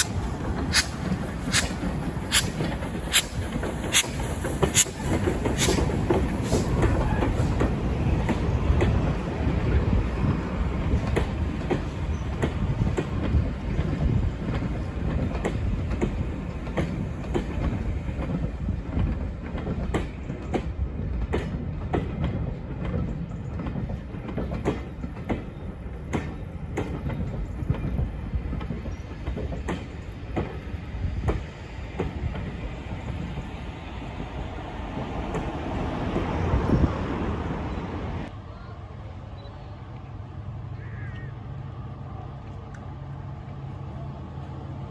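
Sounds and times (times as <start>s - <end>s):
wheels clicking over rail joints: 0.0s - 33.4s
train rumbling: 0.0s - 44.9s.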